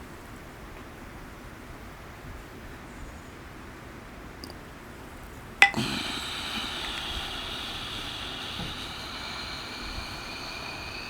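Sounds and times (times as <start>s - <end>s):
long breath out hissing: 5.6s - 11.0s.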